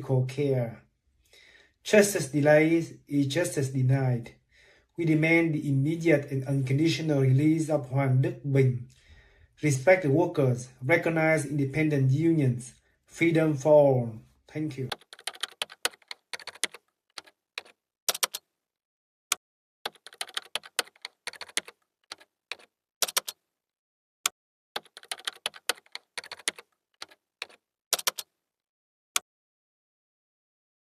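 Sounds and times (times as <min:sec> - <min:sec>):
typing keystrokes: 0:14.9 - 0:18.4, 0:19.9 - 0:23.4, 0:24.8 - 0:28.3.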